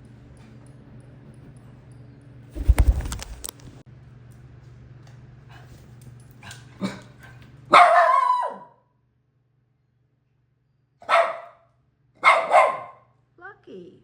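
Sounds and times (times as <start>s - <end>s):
dog barking: 7.7s - 8.8s, 11.0s - 13.1s.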